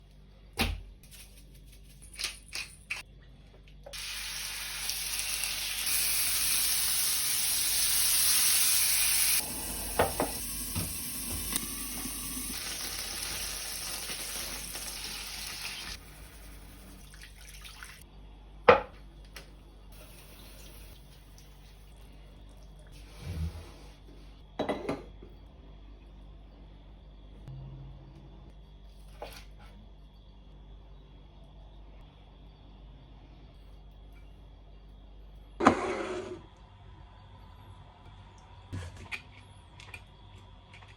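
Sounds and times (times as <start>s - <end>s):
water running from tap: 3.9s - 16.0s, 16.6s - 18.0s.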